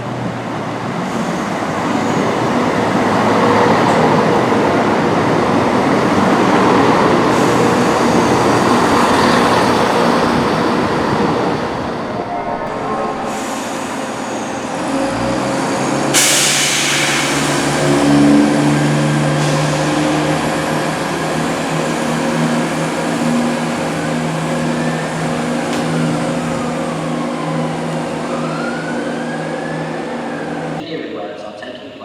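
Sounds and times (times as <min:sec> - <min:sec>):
train diesel engines running: 0:00.0 - 0:30.8
hiss of released air: 0:16.0 - 0:18.2.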